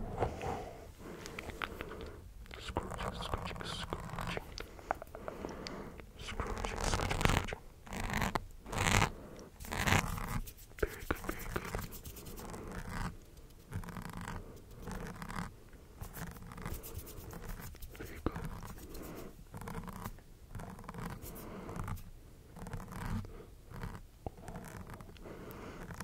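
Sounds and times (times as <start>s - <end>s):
scratching and rustling strokes: 0.0s - 5.5s, 6.1s - 26.0s.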